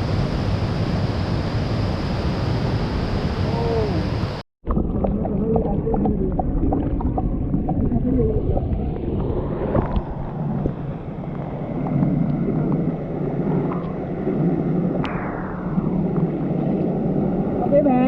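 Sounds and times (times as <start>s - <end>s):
wind on microphone: 5.4s - 18.0s.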